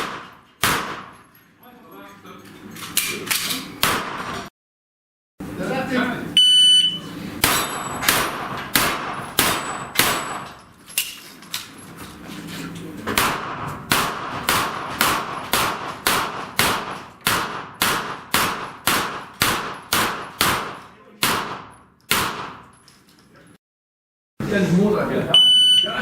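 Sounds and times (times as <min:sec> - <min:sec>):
pistol gunshots: 0:00.0 - 0:01.2, 0:03.8 - 0:04.4, 0:07.4 - 0:10.5, 0:13.1 - 0:22.7
shot timer beep: 0:06.4 - 0:07.1, 0:25.4 - 0:26.0.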